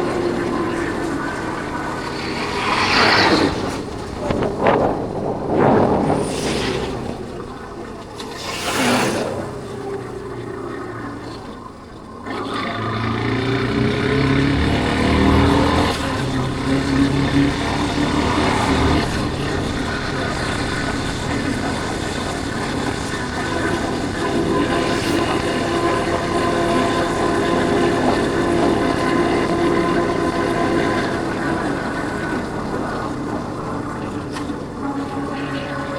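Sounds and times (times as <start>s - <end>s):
rushing whooshes: 0.0s - 10.0s
motorcycle engine: 0.0s - 35.9s.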